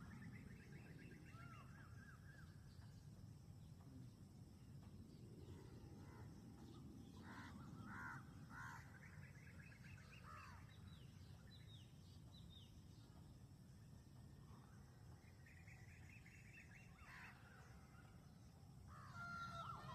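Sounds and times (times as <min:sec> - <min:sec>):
harsh bird calls: 0:07.0 - 0:11.9.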